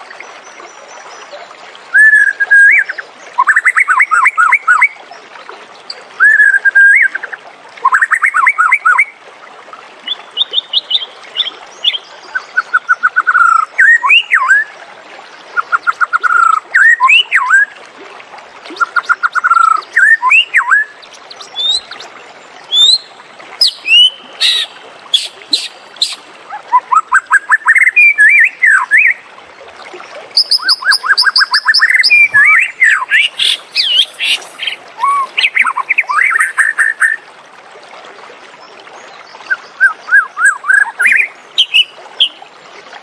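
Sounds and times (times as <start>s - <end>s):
songbird singing whistled phrases: 1.9s - 4.9s, 6.2s - 7.2s, 7.8s - 9.1s, 10.1s - 14.7s, 15.6s - 17.7s, 18.8s - 22.1s, 22.7s - 29.2s, 30.4s - 37.2s, 39.5s - 42.4s.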